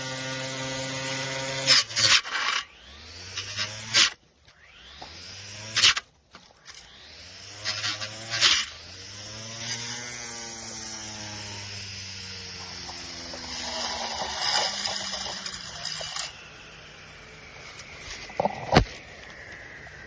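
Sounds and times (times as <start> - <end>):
weed trimmer motor humming: 6.6 - 19.7.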